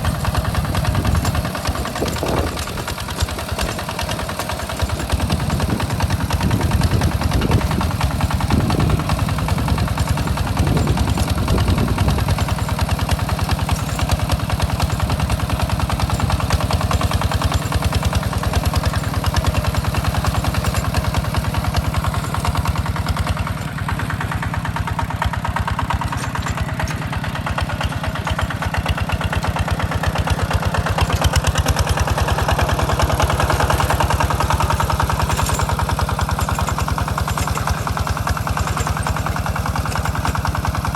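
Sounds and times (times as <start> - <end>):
tractor engine chugging: 0.0 - 40.9.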